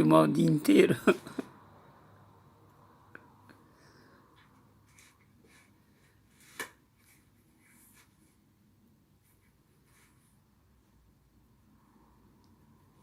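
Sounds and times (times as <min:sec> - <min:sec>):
faint rustles and scrapes: 0:04.3 - 0:11.0.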